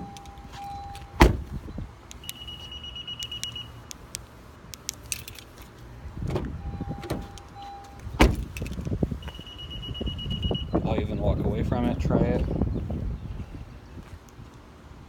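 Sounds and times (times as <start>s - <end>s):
high-pitched warning beep: 0.0s - 1.2s, 2.2s - 3.8s, 6.6s - 8.0s, 9.2s - 10.8s
car door thump: 1.2s - 1.6s, 6.2s - 7.3s, 8.2s - 8.6s.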